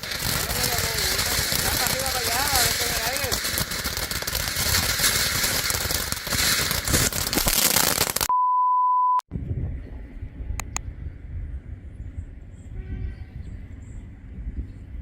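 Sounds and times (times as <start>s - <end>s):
crackling rushing noise: 0.0s - 8.3s
electronic beep: 8.3s - 9.2s.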